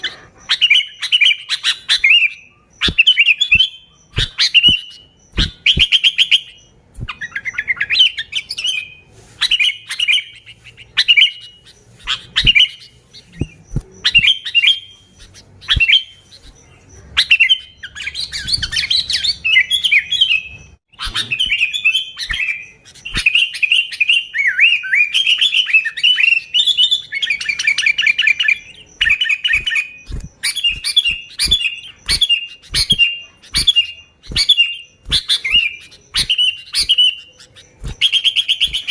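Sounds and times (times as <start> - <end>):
bird chirping song: 0.0 - 38.9.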